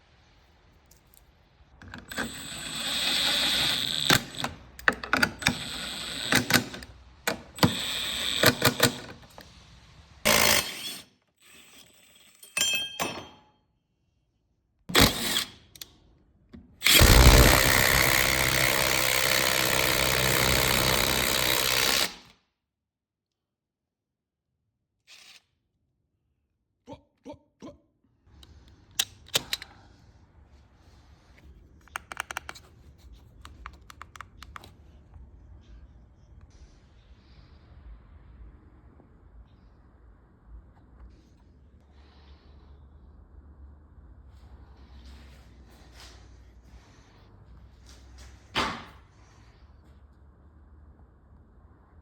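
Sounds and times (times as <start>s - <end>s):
mechanical clicking and ratcheting: 1.8s - 9.4s, 16.8s - 22.2s
loud steady mechanical running: 16.8s - 22.2s.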